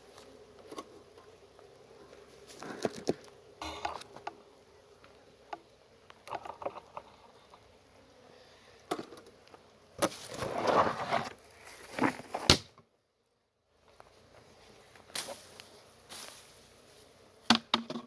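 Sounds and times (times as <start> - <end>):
bees buzzing faintly: 0.0 - 10.4
rustling scrape: 10.1 - 12.4.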